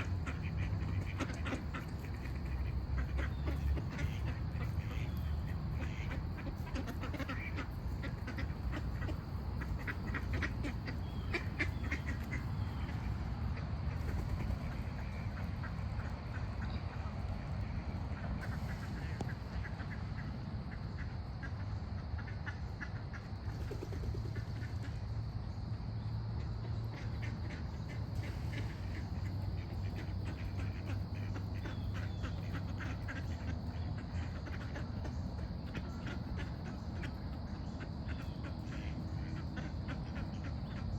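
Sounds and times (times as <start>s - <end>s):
birds calling: 0.0s - 20.3s, 26.6s - 40.9s
steady low rumble: 0.0s - 22.0s.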